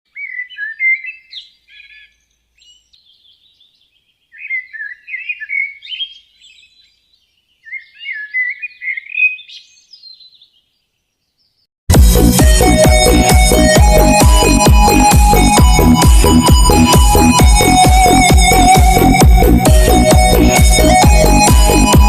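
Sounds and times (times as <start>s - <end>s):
songbird warbling: 0.1s - 11.3s
loud electronic music: 11.9s - 22.0s.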